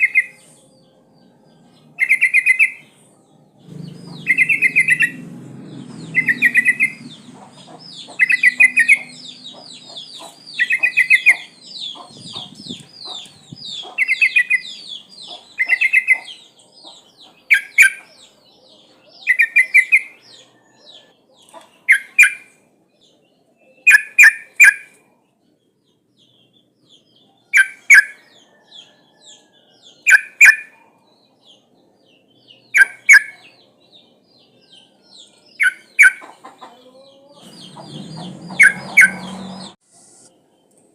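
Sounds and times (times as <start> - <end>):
bird calling bright phrases: 0.0 - 0.6, 1.9 - 3.0, 3.6 - 18.4, 19.1 - 22.6, 34.8 - 36.3, 36.9 - 40.3
low rumble: 3.6 - 8.2
high fast bird chatter: 3.6 - 18.1, 35.6 - 39.8.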